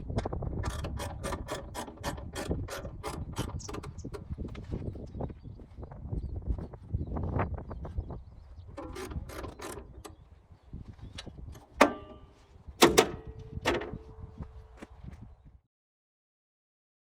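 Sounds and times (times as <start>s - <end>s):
metal knocks and clanks: 0.1s - 4.6s, 11.1s - 14.4s.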